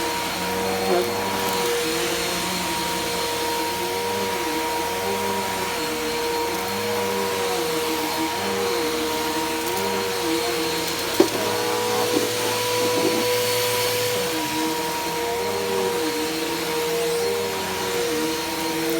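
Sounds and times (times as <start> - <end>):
vacuum cleaner motor whine: 0.0 - 18.9
sharp knocks: 11.2 - 13.3.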